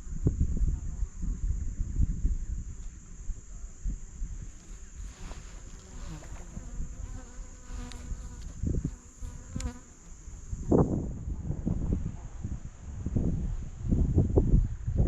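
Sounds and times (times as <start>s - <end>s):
low wind rumble: 0.0s - 15.0s
flying insect buzzing: 2.6s - 11.3s.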